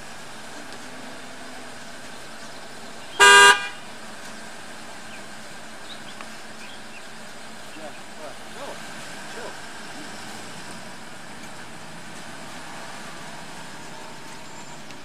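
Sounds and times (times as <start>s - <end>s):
car horn beep: 3.1s - 3.9s.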